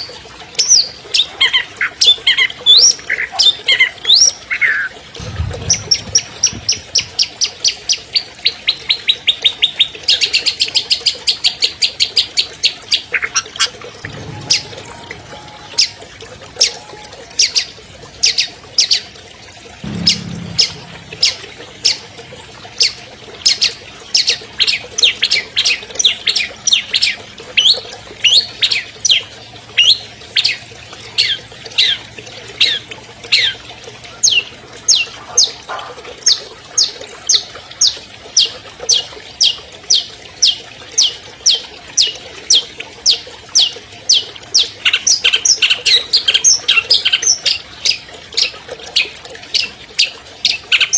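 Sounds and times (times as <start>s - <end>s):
shrike calling sharp notes: 14.1s - 17.1s, 19.8s - 22.1s.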